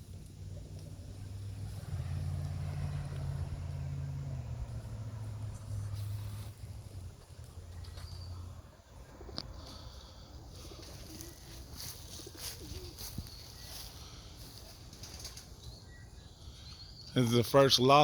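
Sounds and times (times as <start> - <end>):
pigeons cooing: 7.6 - 16.8.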